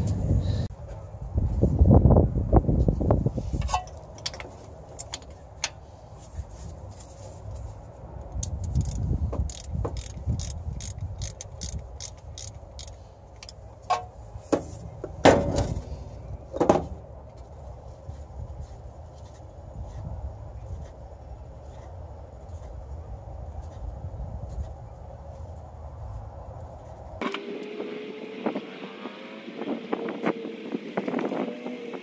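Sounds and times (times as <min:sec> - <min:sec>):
wind rumble on microphone: 0:00.0 - 0:05.1, 0:06.0 - 0:12.9, 0:14.3 - 0:27.2, 0:27.8 - 0:32.0
hand tools clicking and clanking: 0:03.6 - 0:05.8, 0:08.4 - 0:15.8.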